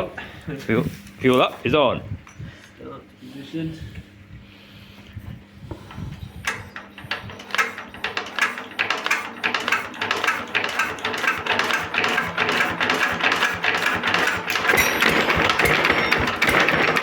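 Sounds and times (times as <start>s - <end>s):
diesel engine hand-cranked starting: 5.7s - 17.0s.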